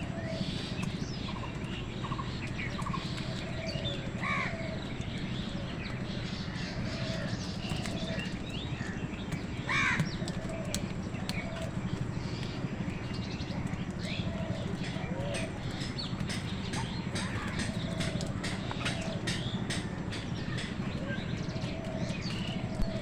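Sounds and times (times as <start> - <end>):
small birds chirping: 0.0 - 23.0
steady low rumble: 0.0 - 23.0
crows cawing: 2.8 - 4.8, 9.6 - 11.6.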